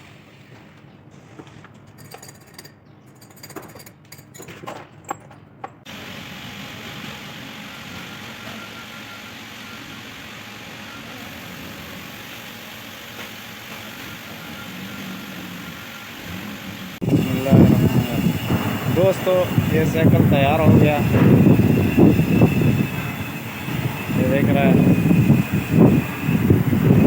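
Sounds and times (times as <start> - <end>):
steady rushing noise: 16.3 - 27.0.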